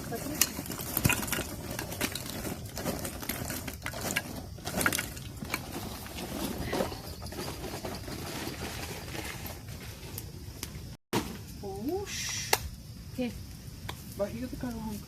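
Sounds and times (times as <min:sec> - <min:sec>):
wood fire crackling: 0:00.0 - 0:15.0
steady hiss: 0:10.1 - 0:15.0.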